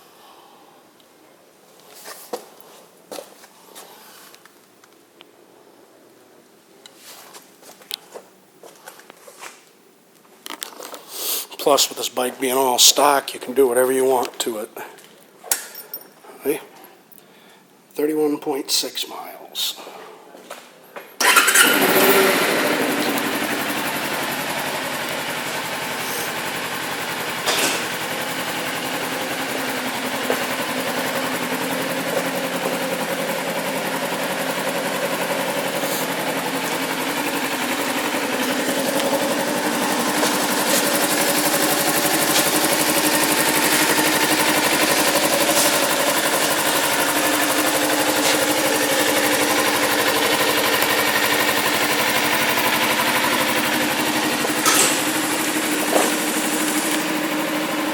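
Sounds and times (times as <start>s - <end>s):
motorcycle engine idling: 21.2s - 57.9s.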